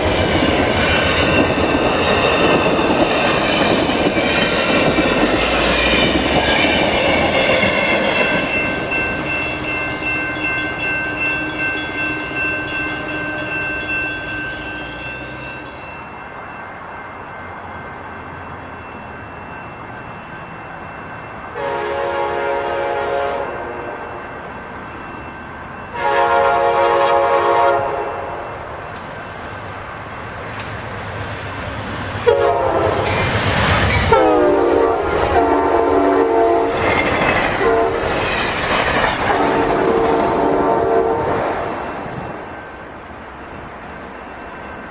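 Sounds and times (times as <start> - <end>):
train wheels clattering: 0.0 - 16.0, 30.3 - 40.5
train horn blasts: 21.6 - 24.2, 25.9 - 28.7, 32.2 - 33.2, 34.1 - 38.2, 39.2 - 41.6.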